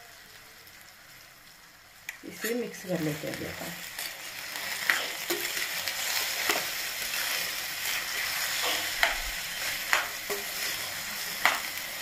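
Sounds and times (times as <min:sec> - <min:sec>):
vegetables sizzling in oil: 0:00.0 - 0:12.0
steel spoon scraping pan: 0:04.7 - 0:11.7.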